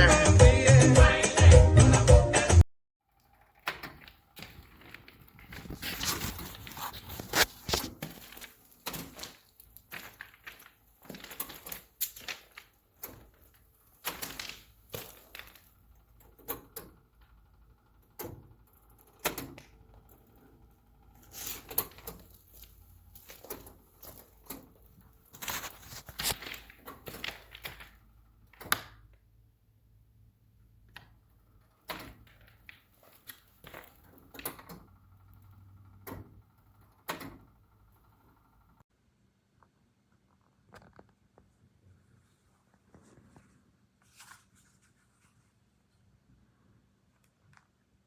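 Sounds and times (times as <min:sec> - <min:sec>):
rustling scrapes: 0:04.4 - 0:12.7, 0:21.2 - 0:28.0, 0:42.3 - 0:45.6.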